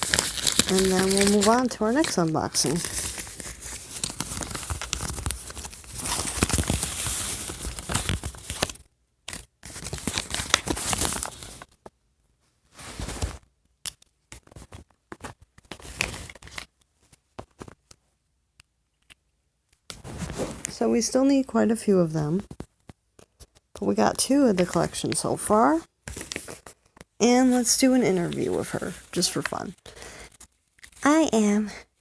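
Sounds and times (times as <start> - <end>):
packaging tearing and crinkling: 0.0 - 11.8, 15.5 - 16.7.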